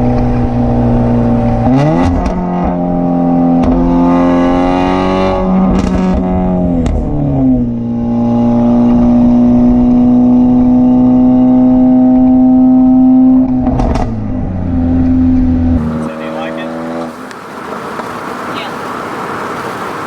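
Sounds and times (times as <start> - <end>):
car engine revving: 0.0 - 20.0
exhaust cracks: 5.3 - 7.8, 13.4 - 20.0.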